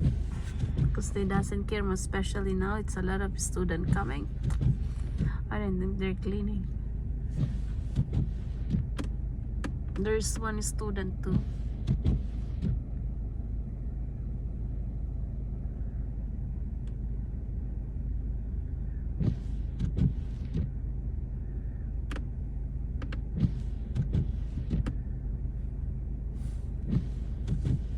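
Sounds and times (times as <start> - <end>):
car engine and road hum: 0.0 - 27.9.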